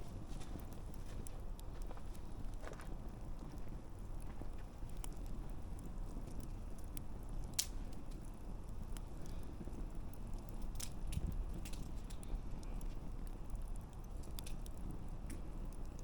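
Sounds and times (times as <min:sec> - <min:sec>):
campfire pops and snaps: 0:00.0 - 0:16.0
low rumble of burning: 0:00.0 - 0:16.0.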